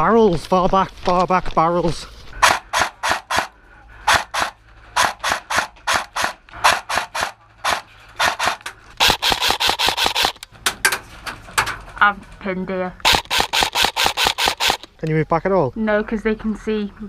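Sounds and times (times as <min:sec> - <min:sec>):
airsoft gun firing rasping shots: 0:02.4 - 0:10.4, 0:13.0 - 0:15.0.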